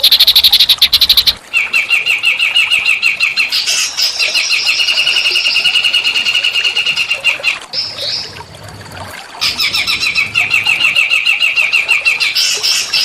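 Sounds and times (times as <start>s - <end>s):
bird whistled phrase: 0.0s - 1.4s
songbird chirping: 0.0s - 1.4s.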